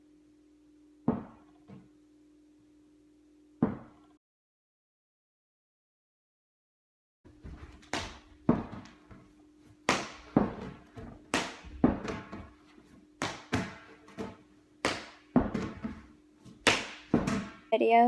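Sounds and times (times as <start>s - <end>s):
faint steady hum: 0.0s - 4.2s
ball bouncing on hard floor: 1.0s - 1.9s, 3.6s - 4.0s, 7.4s - 9.3s, 9.9s - 17.7s.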